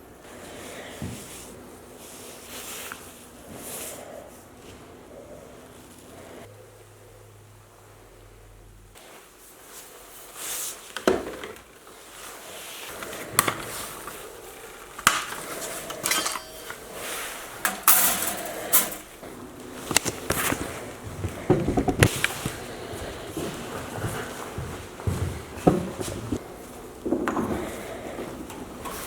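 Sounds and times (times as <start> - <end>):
tools and wood knocking on workbench: 21.4 - 22.1.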